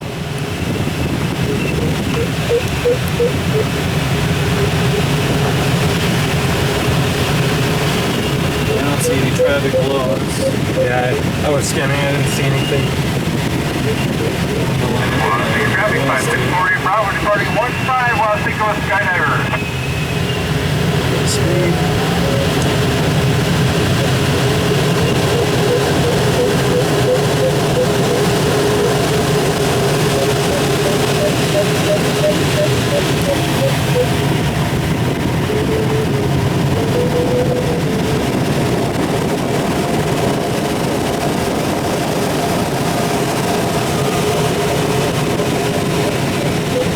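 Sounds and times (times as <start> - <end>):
airflow over glider cockpit: 0.0 - 46.9
variometer short beeps: 8.7 - 11.1.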